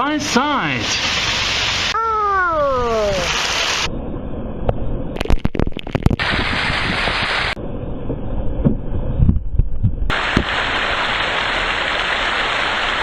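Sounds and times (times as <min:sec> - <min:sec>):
wind buffeting the microphone: 0:05.2 - 0:07.5, 0:08.5 - 0:10.5
waterfall rushing: 0:10.1 - 0:13.0.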